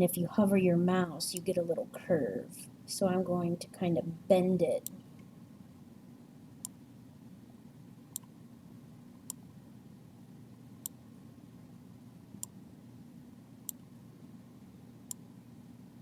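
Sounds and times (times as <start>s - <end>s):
faint low hum: 0.0s - 16.0s
computer mouse clicking: 8.1s - 8.3s, 15.0s - 15.2s.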